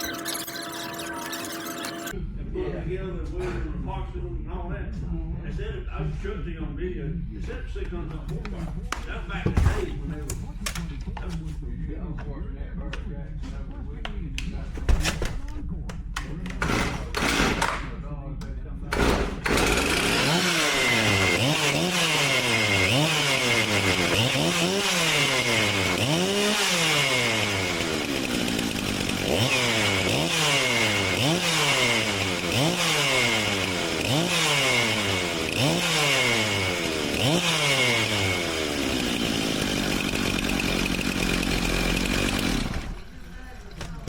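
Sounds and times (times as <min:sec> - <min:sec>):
chainsaw engine revving: 0:16.6 - 0:17.9, 0:18.9 - 0:43.2.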